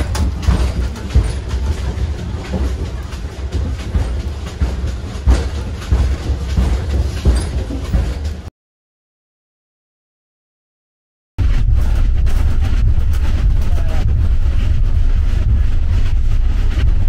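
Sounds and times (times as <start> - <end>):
clattering knocks: 0.0 - 8.5
train carriage rumble and rattle: 0.0 - 8.5, 11.4 - 17.0.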